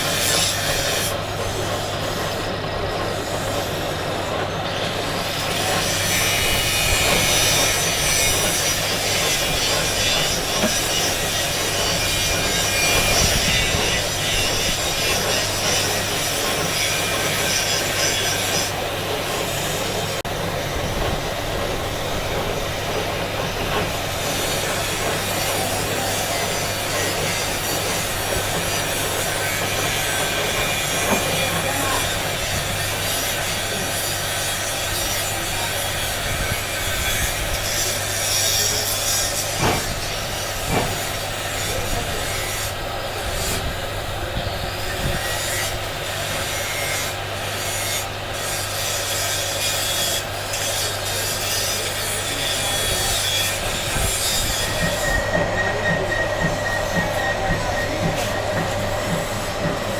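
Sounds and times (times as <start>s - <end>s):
tool rasping against stone: 4.7s - 20.3s, 22.5s - 43.7s, 44.9s - 59.9s.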